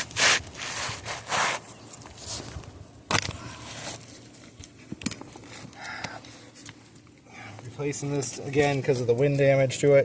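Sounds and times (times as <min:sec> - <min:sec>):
crunching scrape on roof shingles: 0:00.0 - 0:02.6.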